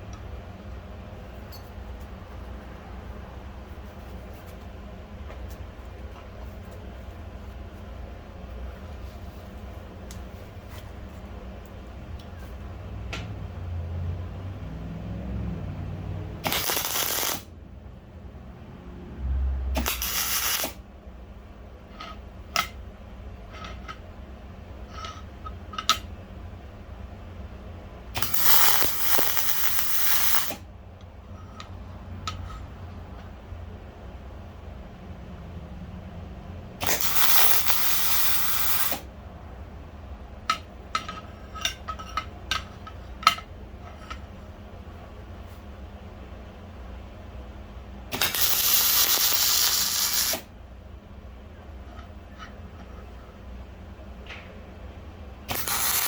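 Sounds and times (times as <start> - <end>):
hissing spray bursts: 19.8 - 20.8, 28.2 - 30.6, 36.8 - 39.0, 48.1 - 50.5, 55.5 - 56.0.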